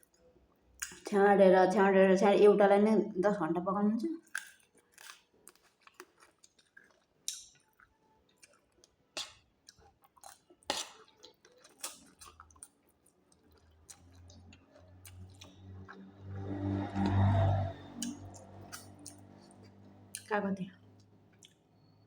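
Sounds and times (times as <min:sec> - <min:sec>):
person chewing and biting: 0:04.2 - 0:16.6
low hum: 0:15.0 - 0:21.2.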